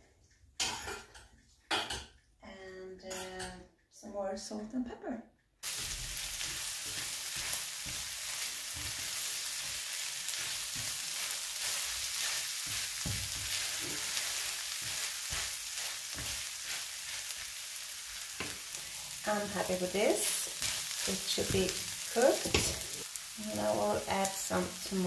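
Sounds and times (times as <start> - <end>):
spatula scraping a pan: 5.6 - 23.1
mince and onions sizzling: 5.6 - 25.0.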